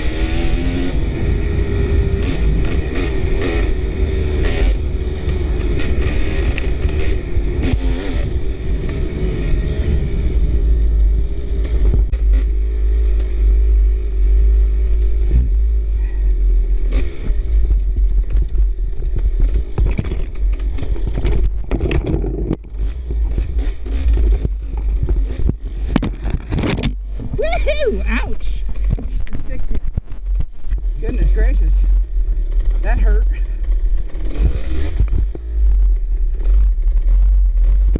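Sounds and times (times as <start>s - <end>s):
dirt bike engine: 0.0s - 37.9s
wind rumble on microphone: 0.0s - 37.9s
bike knocking and clattering: 17.6s - 27.4s.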